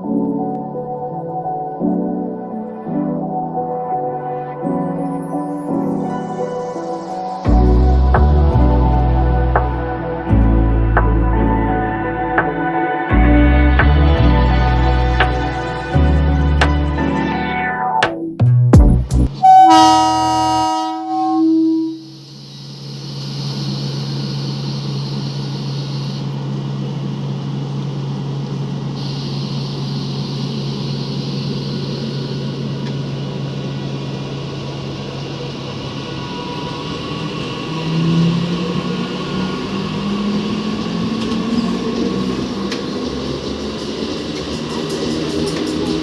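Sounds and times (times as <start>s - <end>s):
rising whine: 0.0s - 46.0s
train horn blast: 19.4s - 22.2s
train wheels rumbling on rails: 22.0s - 46.0s.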